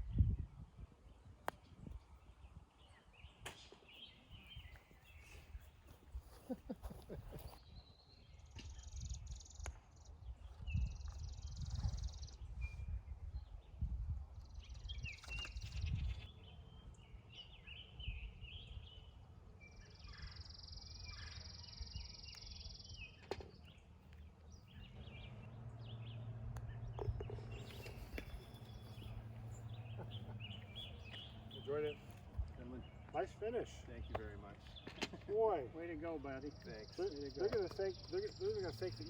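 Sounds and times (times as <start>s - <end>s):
wind rumble on microphone: 0.0s - 2.8s, 6.9s - 16.3s
birds chirping: 1.0s - 13.8s, 14.4s - 39.0s.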